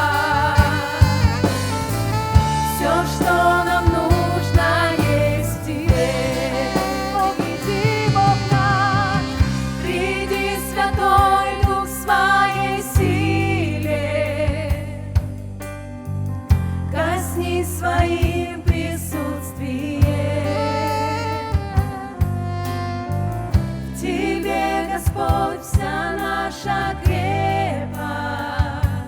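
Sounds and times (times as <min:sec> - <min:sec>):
person singing melody: 0:00.0 - 0:14.1, 0:20.3 - 0:23.3
steady bass: 0:00.0 - 0:29.0.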